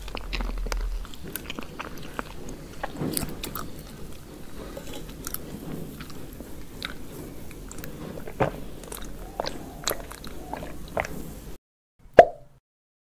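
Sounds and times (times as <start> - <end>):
person chewing cake: 0.0 - 11.6.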